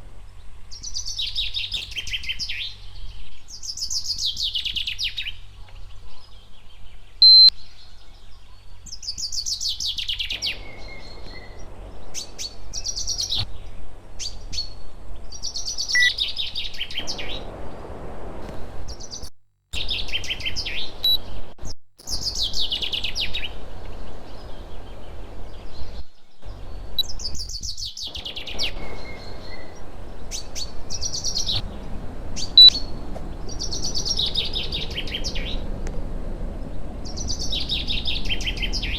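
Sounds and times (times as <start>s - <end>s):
low hum and hiss: 0.0s - 38.9s
songbird singing trilled phrase: 7.2s - 7.7s, 9.2s - 13.5s, 15.4s - 17.4s, 22.0s - 23.6s, 24.2s - 35.7s, 37.0s - 38.9s.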